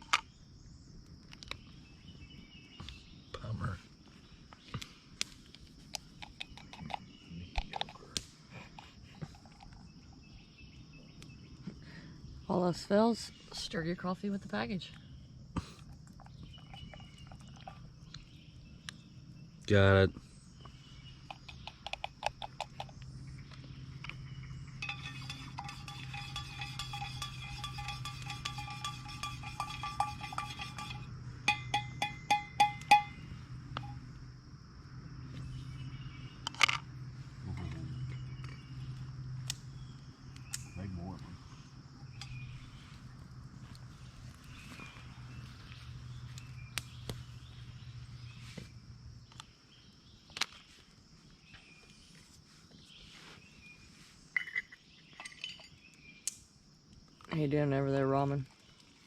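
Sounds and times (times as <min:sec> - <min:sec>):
insects droning: 0:00.0 - 0:59.0
spoon stirring in metal mug: 0:24.8 - 0:33.2
taps against metal mug: 0:24.8 - 0:33.2.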